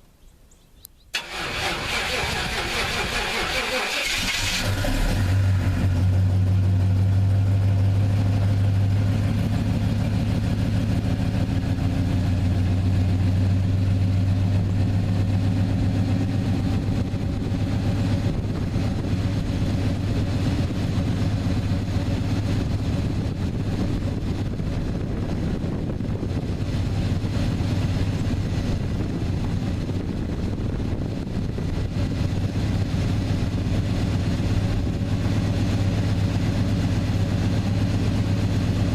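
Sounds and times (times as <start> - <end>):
car engine idling: 1.1 - 38.9.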